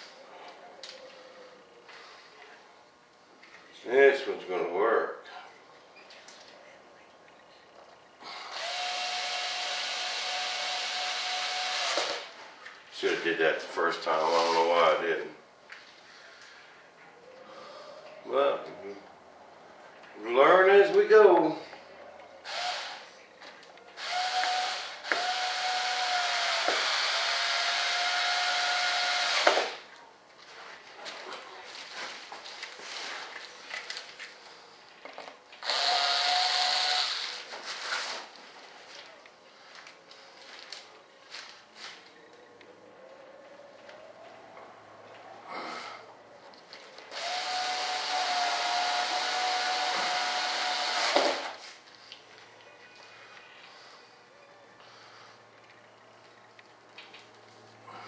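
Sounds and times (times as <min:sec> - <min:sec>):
handheld motorised tool whining: 0:08.5 - 0:12.3, 0:24.0 - 0:29.8, 0:35.6 - 0:37.5, 0:47.1 - 0:51.6.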